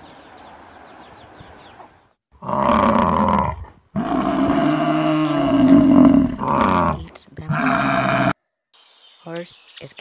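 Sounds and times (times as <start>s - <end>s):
large animal calls: 2.4s - 8.4s.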